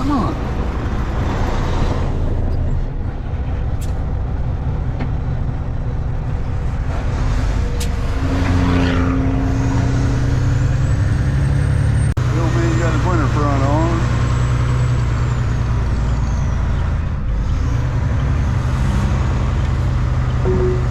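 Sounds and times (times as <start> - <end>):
truck diesel engine running: 0.0 - 8.4, 19.3 - 20.9
road noise: 0.0 - 20.9.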